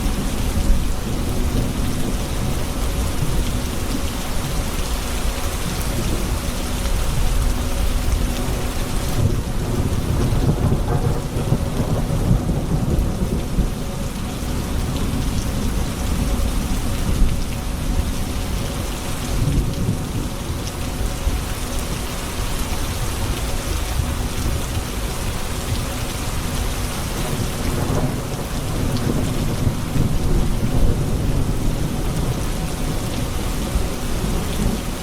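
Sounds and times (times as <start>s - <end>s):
steady rain falling: 0.0s - 35.0s
deep rolling thunder: 9.1s - 17.9s, 27.2s - 35.0s.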